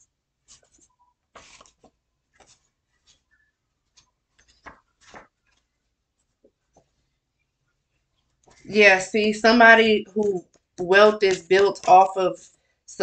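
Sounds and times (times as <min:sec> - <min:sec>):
cards rustling and tapping: 0:00.4 - 0:07.1.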